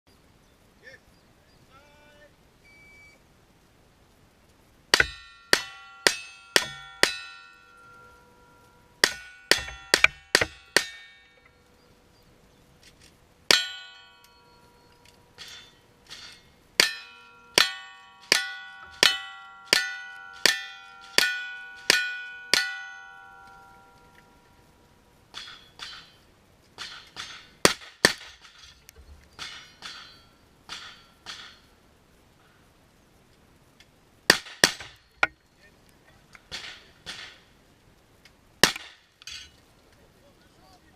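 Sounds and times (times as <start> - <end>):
steel targets ringing: 4.9 - 11.6, 13.5 - 24.7, 25.3 - 27.8, 29.4 - 31.7.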